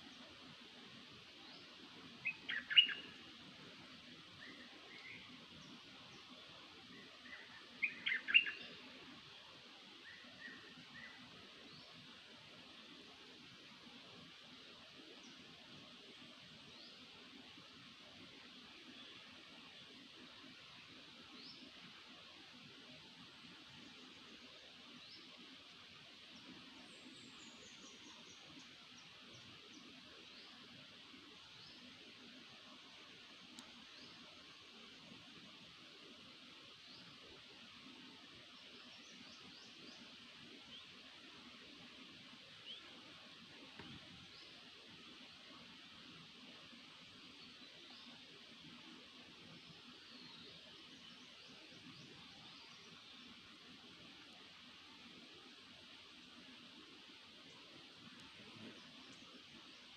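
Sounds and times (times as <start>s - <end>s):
steady background hiss: 0.0s - 59.9s
songbird call: 2.2s - 3.2s, 6.9s - 8.8s.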